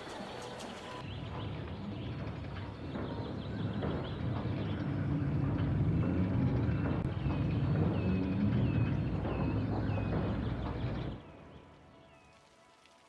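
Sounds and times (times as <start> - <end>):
small birds chirping: 0.0 - 12.4
vehicle engine running: 3.2 - 11.2.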